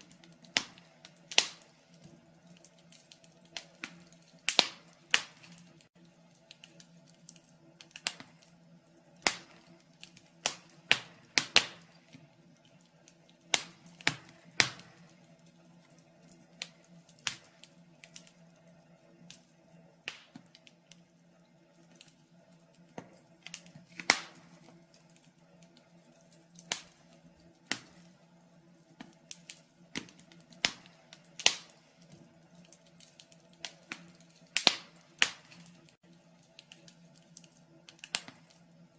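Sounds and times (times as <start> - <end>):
faint steady hum: 0.0 - 38.9
wood fire crackling: 0.0 - 38.9.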